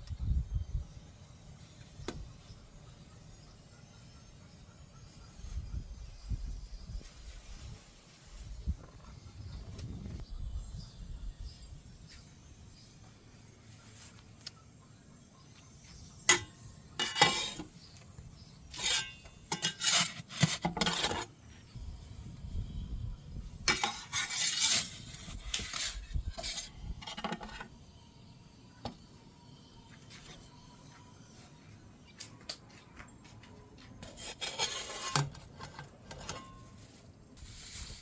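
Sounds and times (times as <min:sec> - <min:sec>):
metal peel scraping oven floor: 0:16.3 - 0:17.7, 0:18.7 - 0:21.3, 0:23.7 - 0:27.7, 0:34.0 - 0:36.8.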